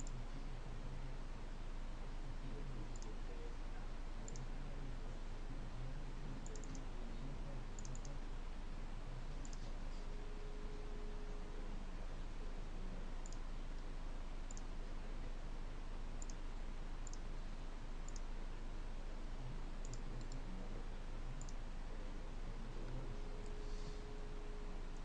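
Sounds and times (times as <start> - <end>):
background hiss: 0.0 - 25.0
computer mouse clicks: 6.4 - 6.9, 7.8 - 8.2, 13.2 - 13.9, 14.5 - 14.7, 16.2 - 16.4, 17.0 - 17.2, 18.1 - 18.3, 19.8 - 20.4.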